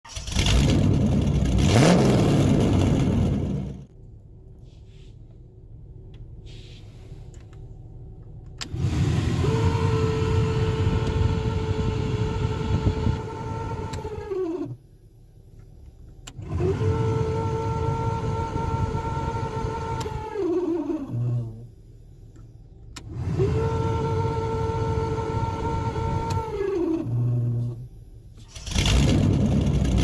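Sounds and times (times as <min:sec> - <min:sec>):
blower motor whine: 0:08.6 - 0:14.8, 0:16.4 - 0:21.7, 0:23.0 - 0:27.9.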